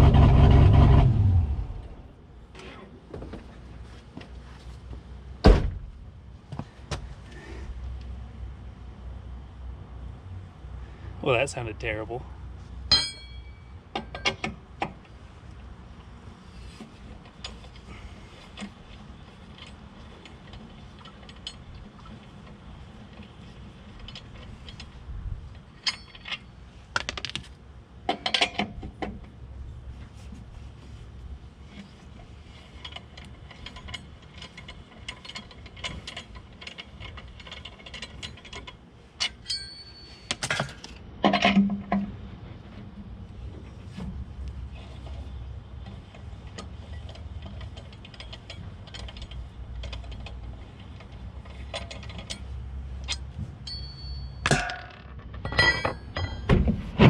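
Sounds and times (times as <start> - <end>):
low steady hum: 0.0 - 57.0
metal tools clinking: 12.9 - 14.4, 25.8 - 26.5, 32.6 - 41.6, 46.8 - 56.6
metal parts clattering: 53.0 - 56.6.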